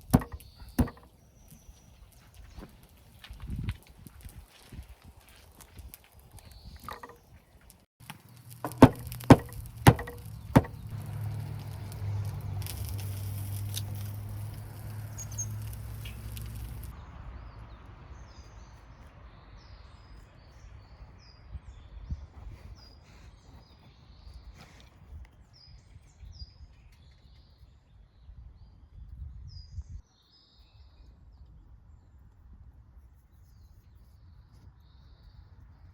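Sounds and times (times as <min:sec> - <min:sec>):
sharp knocks: 0:00.0 - 0:01.1, 0:08.6 - 0:10.9
small birds chirping faintly: 0:00.0 - 0:35.9.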